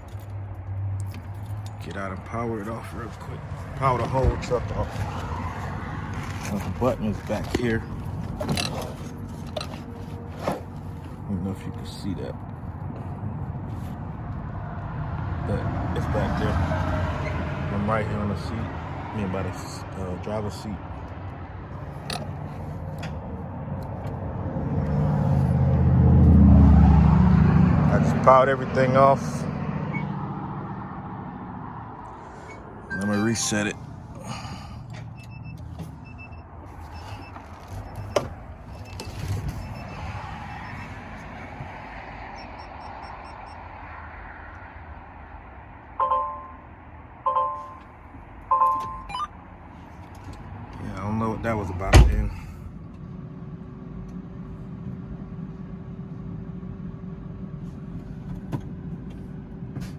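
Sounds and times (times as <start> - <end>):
vehicle engine rumble: 0.0 - 59.9
electronic dash chimes: 32.9 - 33.8, 46.0 - 46.6, 47.3 - 47.8, 48.5 - 49.3.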